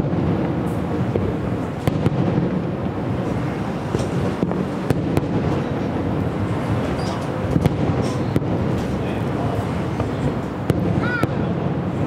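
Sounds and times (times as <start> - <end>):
distant fireworks bursting: 0.0 - 12.0
steady low rumble: 0.0 - 12.0.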